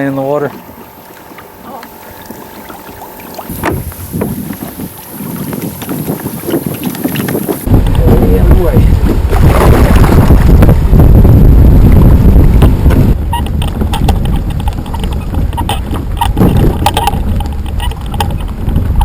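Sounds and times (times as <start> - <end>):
wind buffeting microphone: 3.4 - 19.0
sharp knocks and clicks: 12.9 - 19.0.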